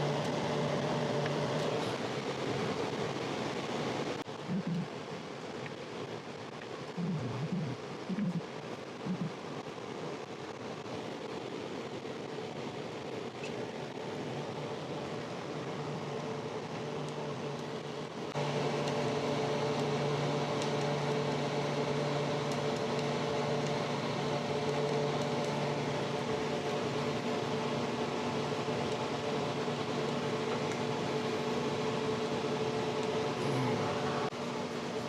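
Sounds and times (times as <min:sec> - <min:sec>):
motor hum: 0:00.0 - 0:05.0, 0:06.9 - 0:09.5, 0:13.0 - 0:35.0.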